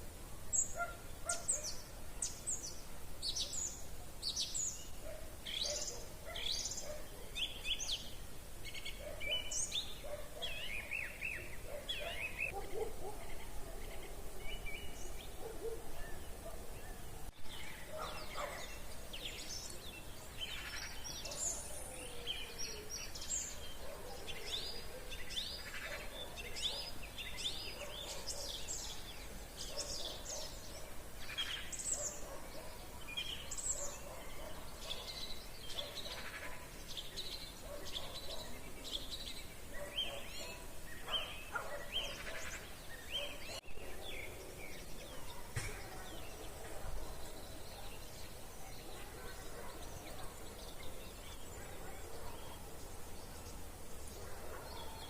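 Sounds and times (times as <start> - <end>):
songbirds chirping and twittering: 0.0 - 55.0.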